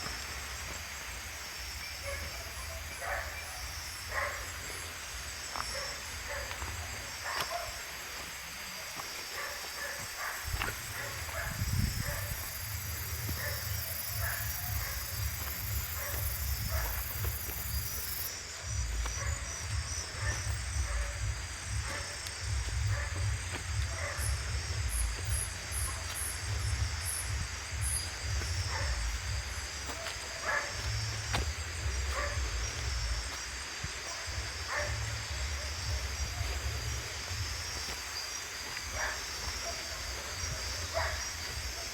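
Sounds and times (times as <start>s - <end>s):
pulsing insect-like chirping: 9.4s - 41.9s
wind rumble on microphone: 10.4s - 17.9s, 18.7s - 30.1s.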